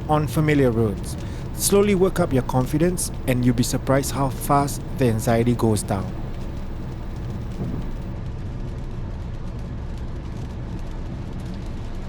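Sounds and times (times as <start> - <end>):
car road and engine rumble: 0.0 - 8.1
rain hiss: 0.0 - 8.1.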